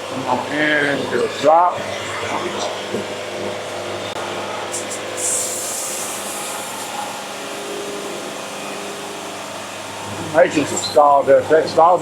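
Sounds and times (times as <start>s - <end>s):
bright hiss of cutting: 4.7s - 7.2s.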